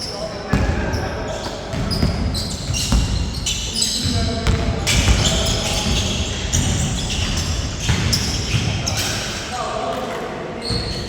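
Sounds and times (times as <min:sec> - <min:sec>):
basketball bouncing on court: 0:00.5 - 0:09.1.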